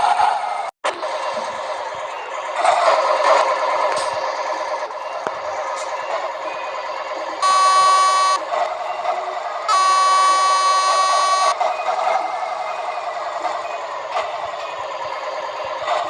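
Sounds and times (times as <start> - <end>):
diesel engine running: 0.0 - 16.0
truck horn blasts: 7.4 - 8.4, 9.7 - 11.6.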